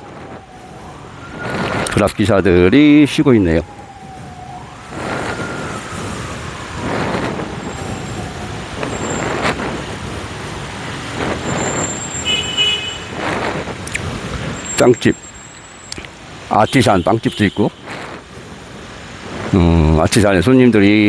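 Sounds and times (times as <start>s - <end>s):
motorbikes and cars passing: 0.0s - 21.0s
car horn beep: 11.9s - 13.1s.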